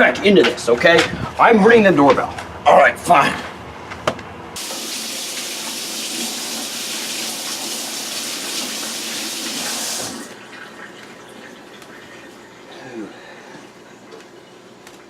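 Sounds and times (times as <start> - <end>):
tap water running into sink: 4.6 - 12.1.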